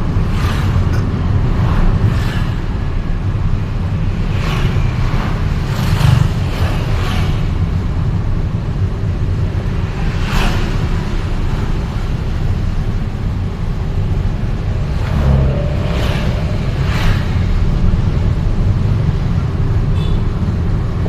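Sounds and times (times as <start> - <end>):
engine and road noise: 0.0 - 21.0
vehicles swishing past: 0.0 - 21.0.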